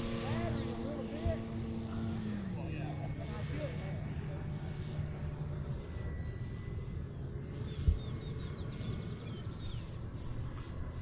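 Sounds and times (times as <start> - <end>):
low steady rumble: 0.0 - 11.0
bird chirping faintly: 5.2 - 10.7.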